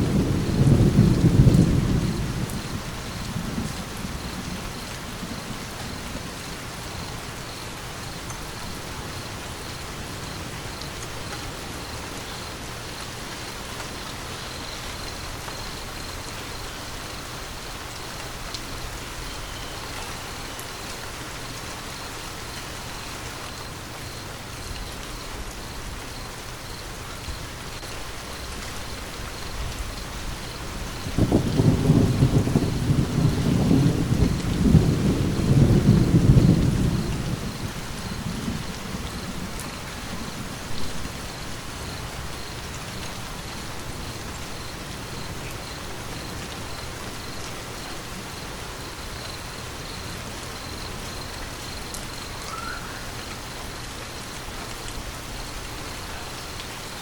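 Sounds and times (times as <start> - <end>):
thunder rumbling: 0.0 - 6.9, 28.5 - 47.4
steady rain falling: 0.0 - 57.0.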